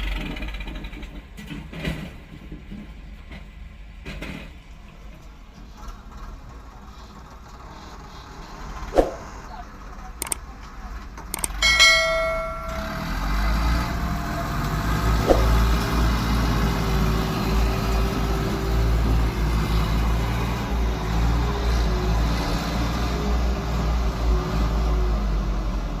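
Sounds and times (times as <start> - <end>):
tractor diesel engine rumbling: 0.0 - 26.0
short ringing tone: 11.4 - 14.6.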